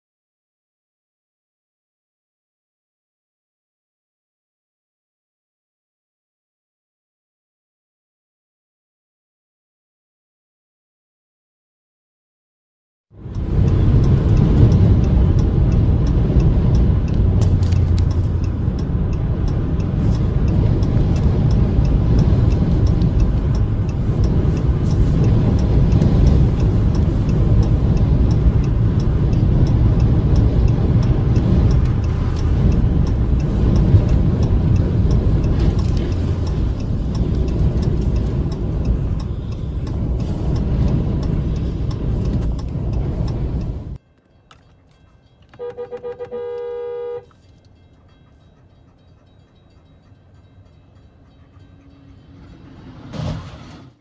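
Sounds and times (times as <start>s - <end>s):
car engine and road rumble: 13.1s - 54.0s
faint clicks and ticks: 13.2s - 52.6s.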